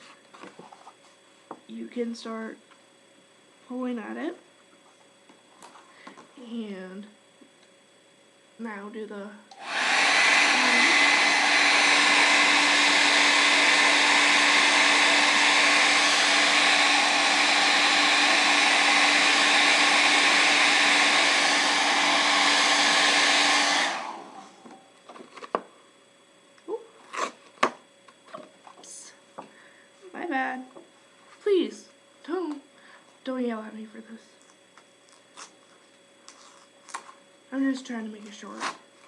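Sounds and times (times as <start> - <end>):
hairdryer blowing: 9.5 - 25.6.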